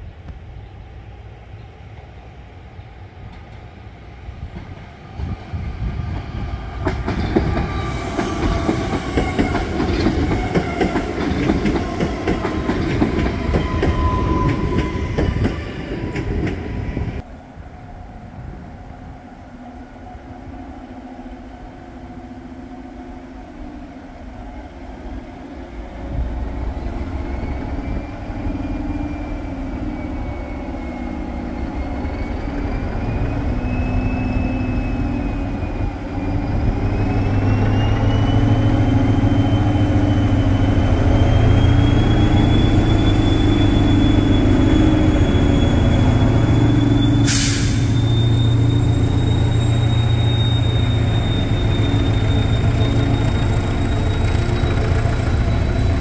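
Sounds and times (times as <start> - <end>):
train wheels clicking over rail joints: 6.1 - 16.7, 52.2 - 56.0
diesel locomotive engine running: 35.2 - 56.0.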